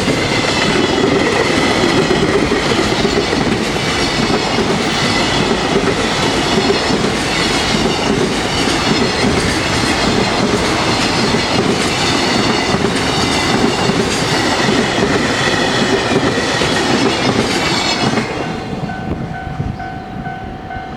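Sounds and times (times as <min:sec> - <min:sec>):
wheels clicking over rail joints: 0:00.0 - 0:18.4
high ringing wheel squeal: 0:03.9 - 0:20.9.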